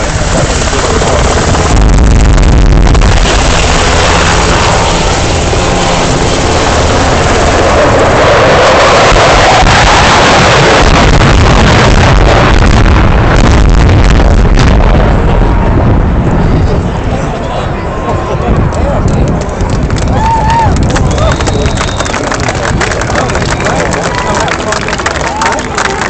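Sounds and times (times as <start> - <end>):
wind buffeting microphone: 0.0 - 25.4
military aircraft roaring: 0.0 - 26.0.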